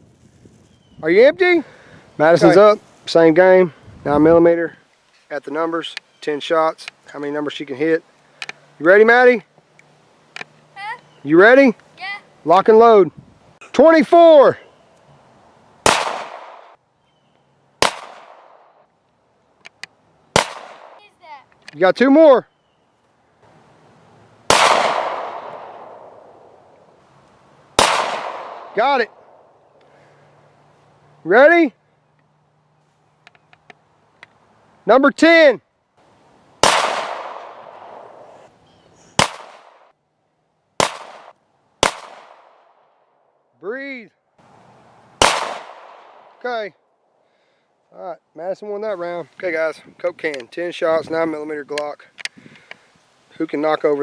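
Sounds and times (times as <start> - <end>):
pistol shots echoing: 15.8 - 16.8, 17.8 - 18.7, 20.3 - 21.0, 24.5 - 26.4, 27.8 - 28.8, 36.6 - 38.2, 39.2 - 39.8, 40.8 - 42.6, 45.2 - 46.3
faint clicks: 51.7 - 52.8.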